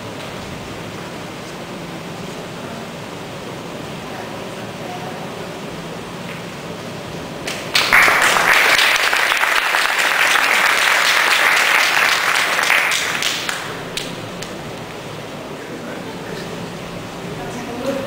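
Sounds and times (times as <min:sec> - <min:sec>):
audience applauding: 0:07.4 - 0:14.5.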